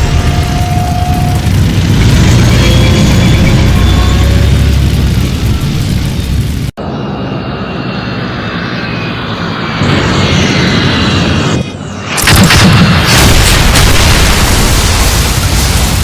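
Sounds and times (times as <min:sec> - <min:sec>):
aircraft engine droning: 0:00.0 - 0:12.2
loud burst of noise: 0:00.0 - 0:16.0.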